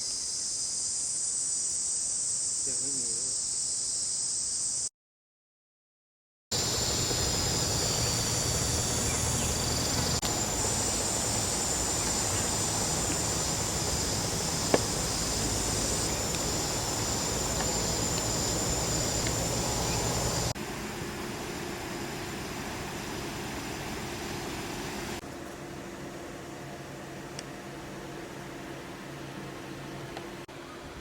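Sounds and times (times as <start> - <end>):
insects trilling: 0.0 - 4.9, 6.6 - 20.6
low hum: 6.6 - 31.0.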